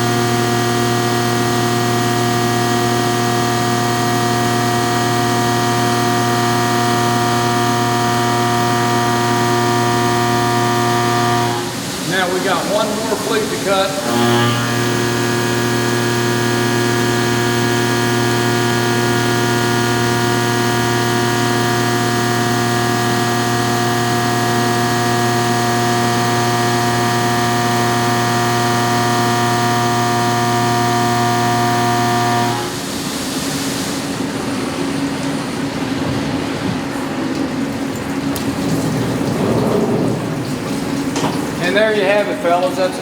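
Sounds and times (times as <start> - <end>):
coolant spray hiss and splash: 0.0 - 14.1, 32.6 - 34.6, 37.3 - 43.0
milling machine whine: 0.0 - 43.0.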